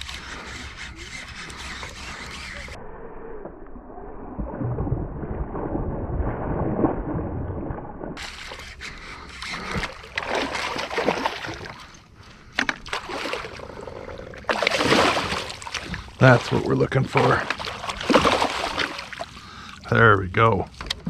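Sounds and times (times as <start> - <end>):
fish thrashing and splashing water: 8.2 - 12.0, 12.6 - 19.9.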